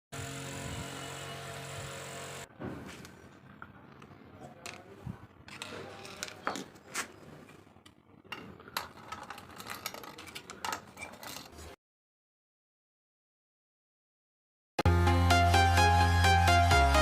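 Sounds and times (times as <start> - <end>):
small hard parts clicking and tapping: 7.8 - 11.8.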